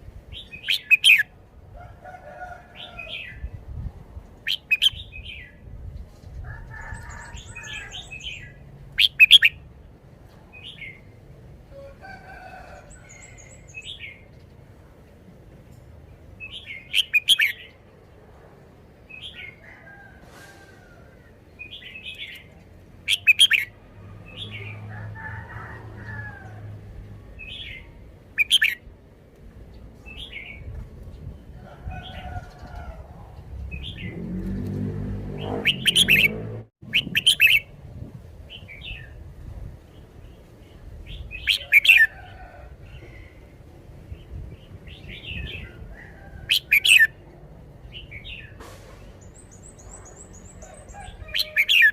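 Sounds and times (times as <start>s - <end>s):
bird chirping: 0.4s - 1.3s, 7.4s - 9.6s, 23.1s - 23.7s.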